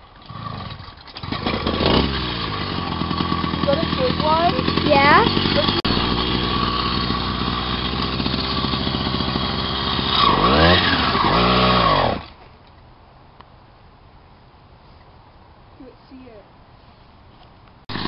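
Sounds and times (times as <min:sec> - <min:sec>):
moped engine revving: 0:00.1 - 0:12.3.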